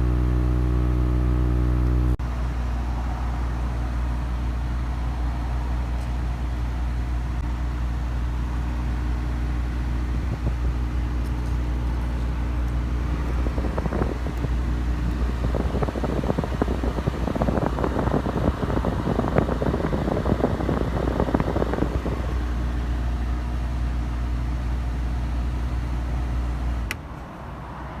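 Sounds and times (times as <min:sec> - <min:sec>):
car engine idling: 0:00.0 - 0:27.0
rapid irregular rattle: 0:10.3 - 0:22.6.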